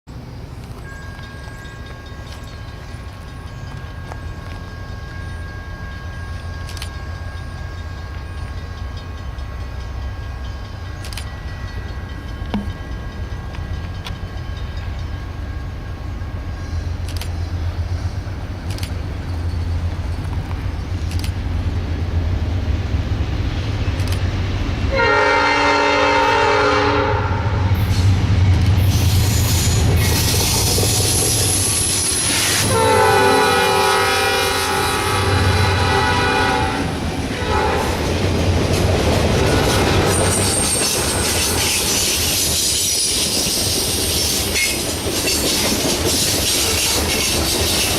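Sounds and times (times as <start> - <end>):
diesel locomotive engines rumbling: 0.1 - 47.9
wheel and rail noise: 0.1 - 47.9
train air horn blasts: 24.9 - 27.8, 28.9 - 38.1, 39.4 - 42.3.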